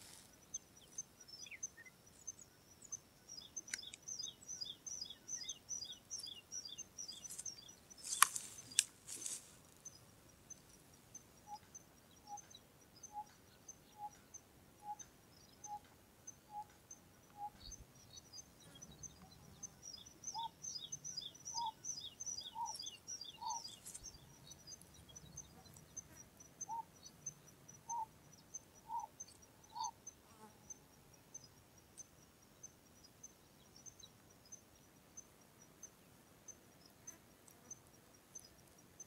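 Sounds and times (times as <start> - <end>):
rapid high bird chirping: 19.9 - 24.8.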